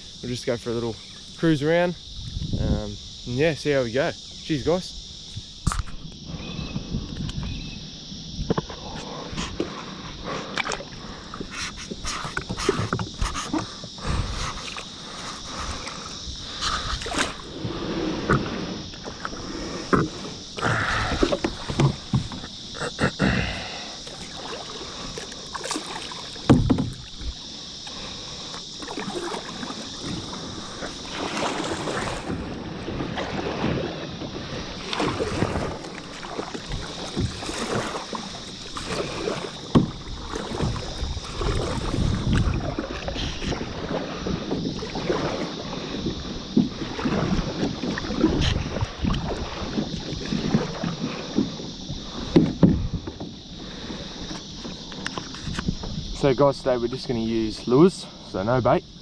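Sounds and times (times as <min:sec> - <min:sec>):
paddles splashing in water: 0:08.4 - 0:59.0.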